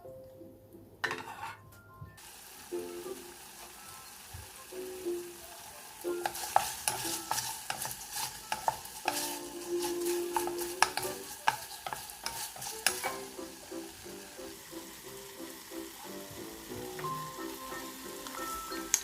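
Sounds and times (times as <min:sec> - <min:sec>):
utensil scraping a pan: 0:01.1 - 0:01.6, 0:06.2 - 0:13.4
oil sizzling: 0:02.2 - 0:19.0.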